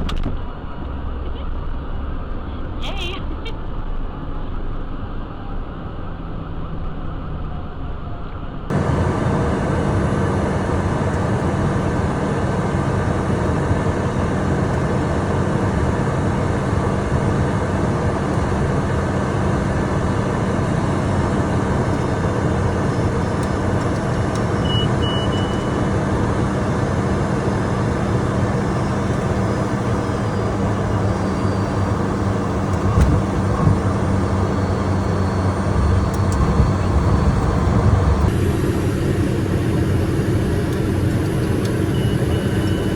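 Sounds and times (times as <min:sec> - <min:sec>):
jet cockpit engine noise: 0:00.0 - 0:42.9
short high beep: 0:24.6 - 0:25.9
low thumps: 0:32.6 - 0:34.4.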